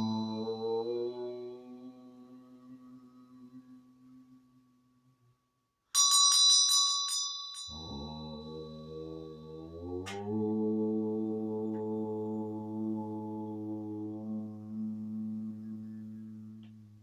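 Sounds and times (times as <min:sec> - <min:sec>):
low drone with overtones: 0:00.0 - 0:04.4
small bell ringing: 0:06.0 - 0:07.8.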